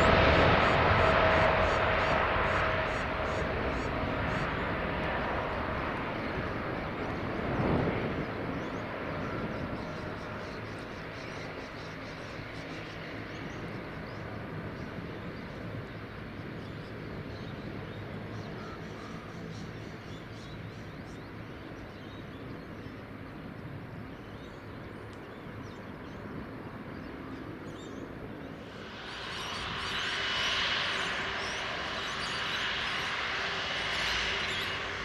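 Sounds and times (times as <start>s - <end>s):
jet engines rumbling: 0.0s - 35.0s
faint bird chirps: 16.6s - 23.1s.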